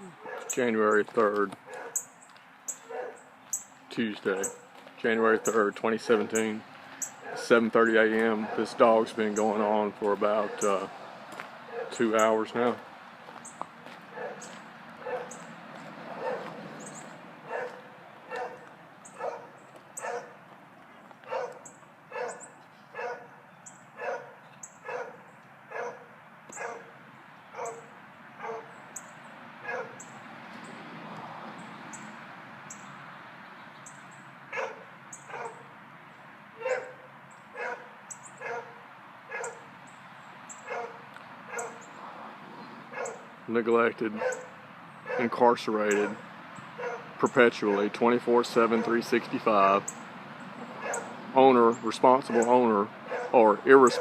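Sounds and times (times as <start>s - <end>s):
dog barking: 0.2s - 0.6s, 1.7s - 2.0s, 2.8s - 3.2s, 7.2s - 7.6s, 8.3s - 8.8s, 10.4s - 10.8s, 11.7s - 12.0s, 14.1s - 15.4s, 16.1s - 16.6s, 17.5s - 20.4s, 21.3s - 23.4s, 24.0s - 26.9s, 27.6s - 28.7s, 29.6s - 30.0s, 34.5s - 35.7s, 36.6s - 39.6s, 40.6s - 41.9s, 42.9s - 43.3s, 44.2s - 45.3s, 46.8s - 47.1s, 47.7s - 47.9s, 48.8s - 49.0s, 50.8s - 51.1s, 52.3s - 54.0s.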